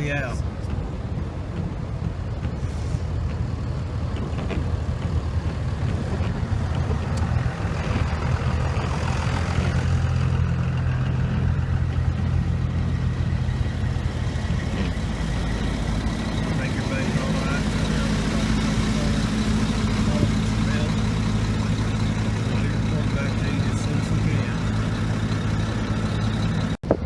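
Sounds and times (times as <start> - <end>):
vehicle engine hum: 0.0 - 27.0
road hiss: 2.3 - 5.0.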